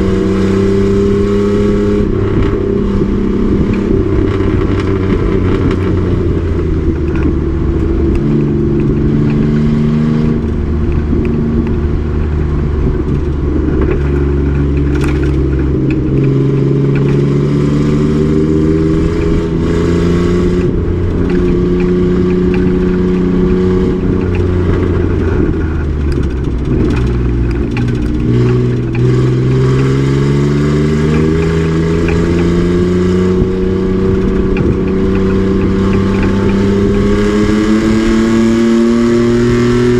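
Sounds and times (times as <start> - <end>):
race truck engine accelerating: 0.0 - 39.9.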